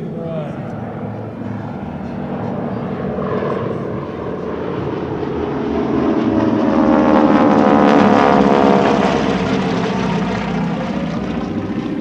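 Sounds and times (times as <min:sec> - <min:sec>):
propeller planes passing low: 0:00.0 - 0:12.0.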